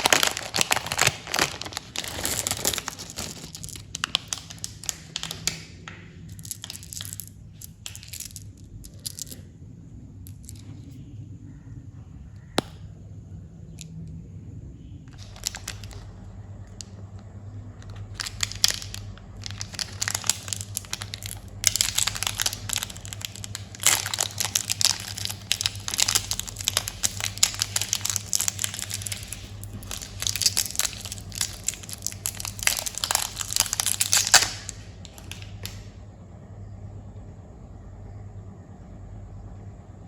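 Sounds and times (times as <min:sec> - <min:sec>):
wrappers crinkling and tearing: 0:00.0 - 0:05.7, 0:06.3 - 0:09.4, 0:15.1 - 0:17.0, 0:17.7 - 0:35.9
low steady hum: 0:00.0 - 0:40.0.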